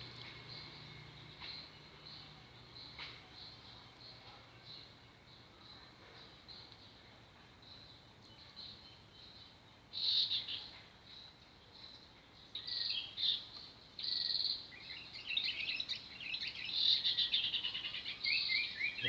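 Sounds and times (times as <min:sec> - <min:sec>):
small birds chirping and trilling: 0:07.6 - 0:19.0.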